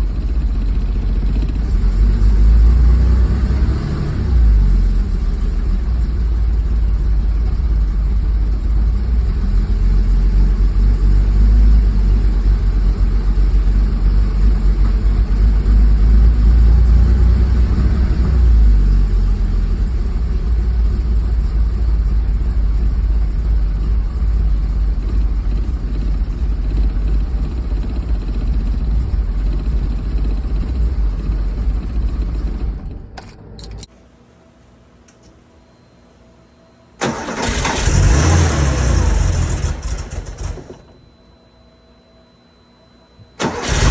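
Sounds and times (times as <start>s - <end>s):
engine running roughly: 0.0s - 33.9s, 37.0s - 40.9s, 43.4s - 43.9s
engine blip: 37.0s - 41.2s, 43.2s - 43.9s.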